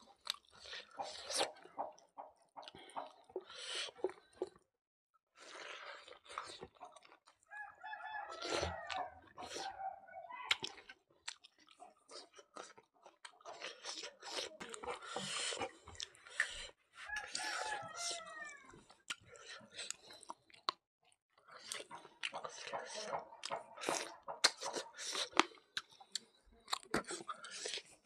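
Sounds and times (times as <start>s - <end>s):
chewing and crunching: 0.0s - 4.6s, 5.4s - 28.0s
rooster crowing: 7.5s - 9.8s, 17.0s - 18.7s.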